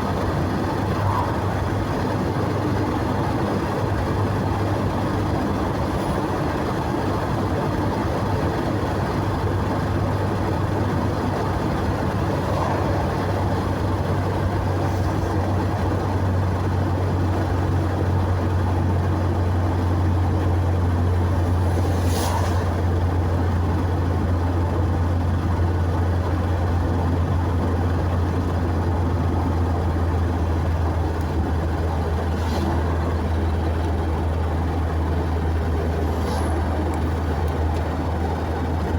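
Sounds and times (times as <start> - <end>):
car engine and tyre drone: 0.0 - 38.9.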